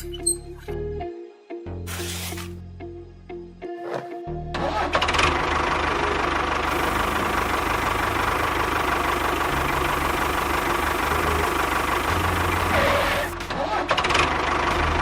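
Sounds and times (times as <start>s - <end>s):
tractor engine idling: 4.8s - 15.0s.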